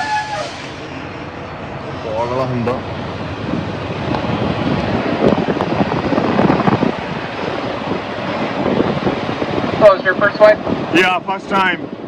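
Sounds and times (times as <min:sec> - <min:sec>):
diesel truck engine idling: 0:00.0 - 0:12.0
wind noise on microphone: 0:02.5 - 0:12.0.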